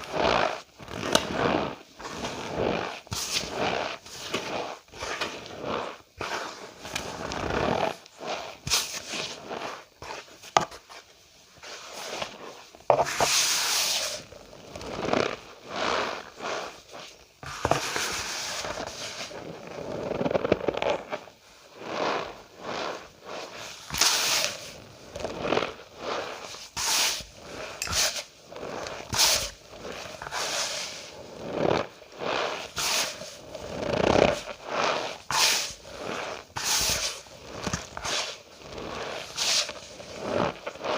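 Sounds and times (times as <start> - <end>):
cornstarch squeaky crunches: 17.7 - 40.9.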